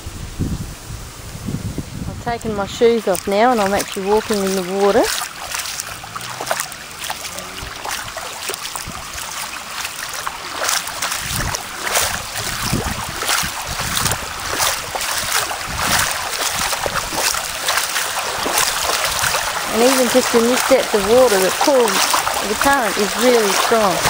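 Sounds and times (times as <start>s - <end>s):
floodwater rushing and splashing: 0.0s - 24.0s
wading steps sloshing: 2.2s - 24.0s.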